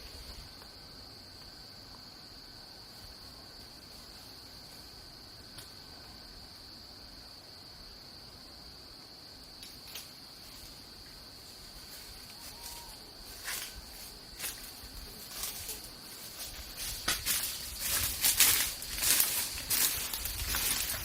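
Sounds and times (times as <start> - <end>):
high-pitched insect drone: 0.0 - 21.0
sharp rustling and crackling: 11.8 - 21.0.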